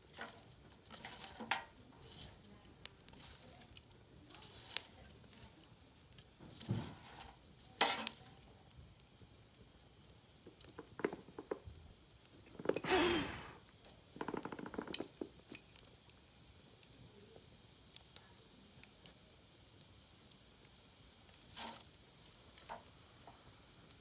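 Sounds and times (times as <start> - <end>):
bonfire crackling and sizzling: 0.0 - 24.0
sharp pops of burning wood: 6.0 - 17.0.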